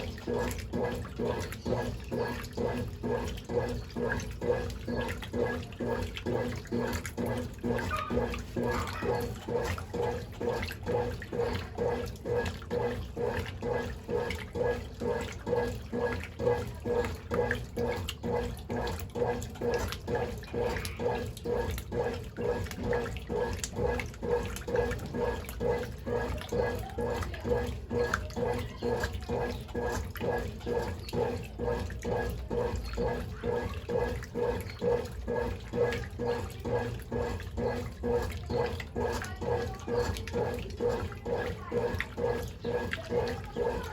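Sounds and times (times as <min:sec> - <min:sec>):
washing machine motor hum pulsing: 0:00.0 - 0:43.9
water sloshing: 0:00.0 - 0:43.9.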